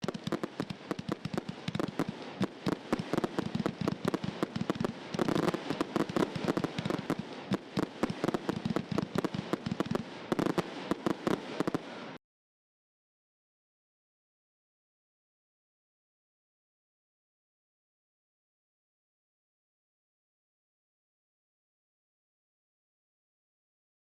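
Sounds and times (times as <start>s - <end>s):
fireworks bangs and crackles: 0.0s - 12.2s.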